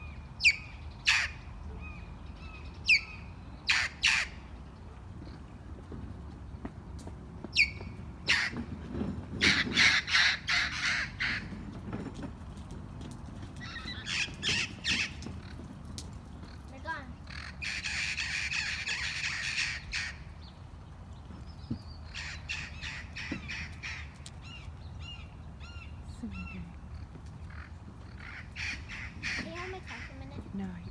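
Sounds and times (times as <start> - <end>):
parrots squawking: 0.4 - 1.9, 3.7 - 4.4, 8.3 - 8.6, 9.4 - 11.5, 17.3 - 20.2, 27.5 - 30.2.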